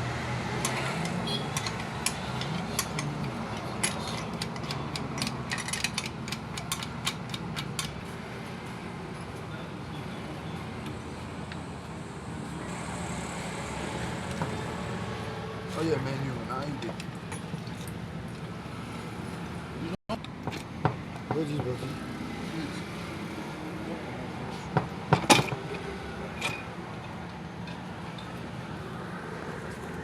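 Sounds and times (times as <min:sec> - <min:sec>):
low machinery drone: 0:10.4 - 0:16.6.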